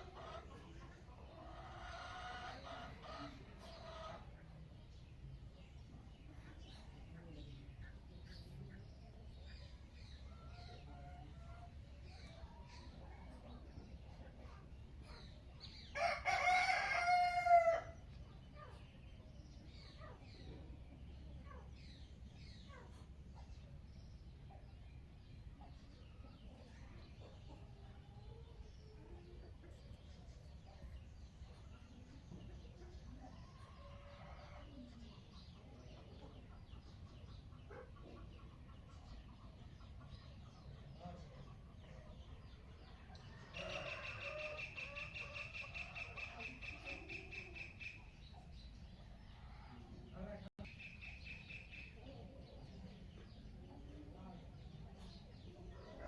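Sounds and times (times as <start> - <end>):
small birds chirping: 0.0 - 56.0
rooster crowing: 16.0 - 17.9.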